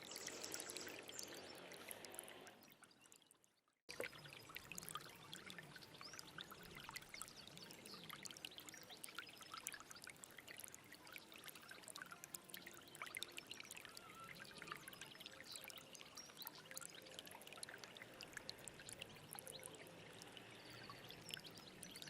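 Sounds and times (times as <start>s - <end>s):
small stream trickling: 0.0s - 22.0s.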